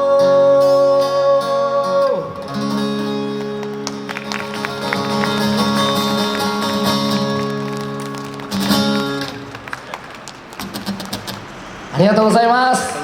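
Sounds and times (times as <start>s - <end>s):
acoustic guitars strumming chords: 0.0s - 9.7s.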